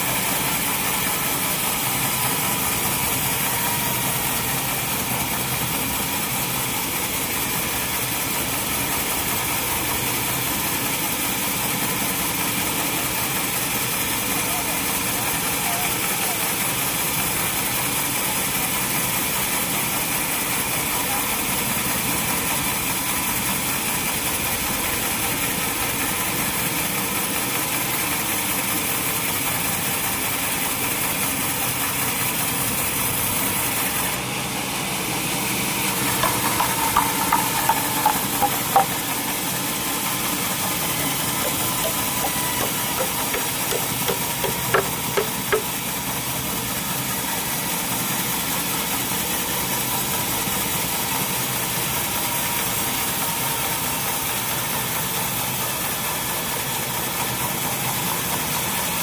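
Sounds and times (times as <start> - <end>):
sawmill machinery running: 0.0 - 20.7, 26.6 - 46.1.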